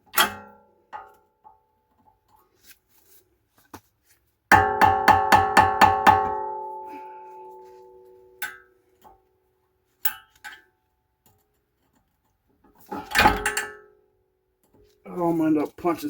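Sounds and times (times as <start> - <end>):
metal-on-metal strikes ringing: 4.5 - 8.7.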